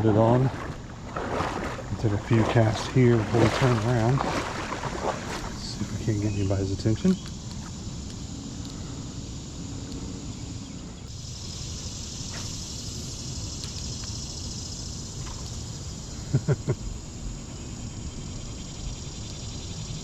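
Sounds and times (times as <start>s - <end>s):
running water: 0.0s - 7.2s
high insect hiss: 0.1s - 20.0s.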